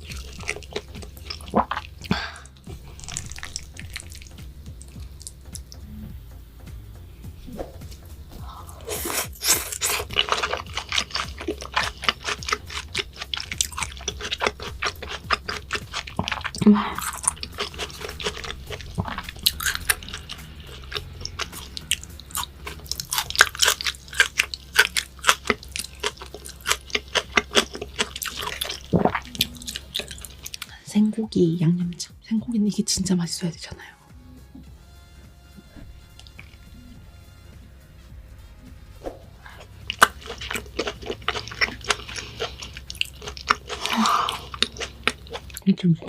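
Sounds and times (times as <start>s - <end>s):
person chewing: 0.0s - 6.0s, 8.4s - 30.7s, 36.1s - 37.0s, 39.3s - 45.6s.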